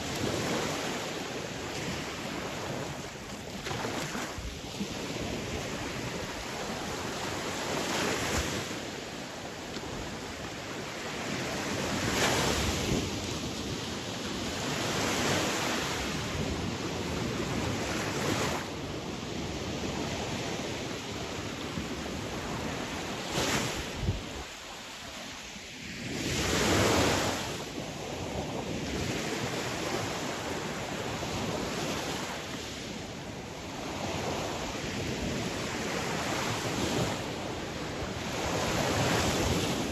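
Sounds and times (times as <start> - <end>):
sea waves breaking on shore: 0.0 - 39.9
wind rumble on microphone: 0.0 - 39.9.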